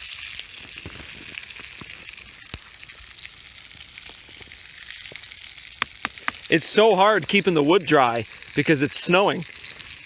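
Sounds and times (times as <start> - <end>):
food sizzling in a pan: 0.0 - 10.0
sharp pops: 5.8 - 6.5.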